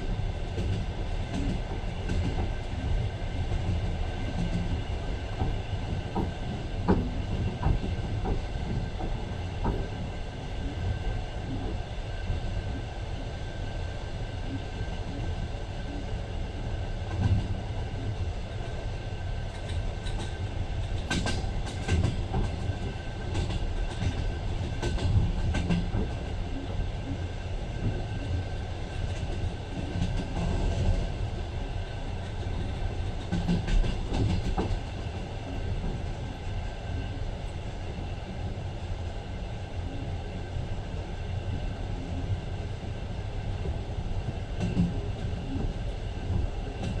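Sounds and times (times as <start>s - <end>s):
train rumble inside carriage: 0.0s - 47.0s
wheels clicking over rail joints: 32.2s - 35.0s.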